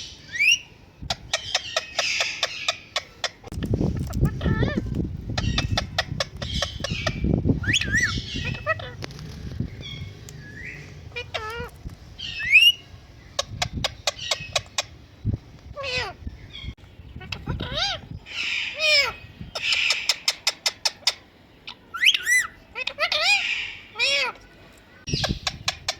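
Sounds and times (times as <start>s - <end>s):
parrot whistled squawks: 6.7s - 9.0s, 21.9s - 24.3s.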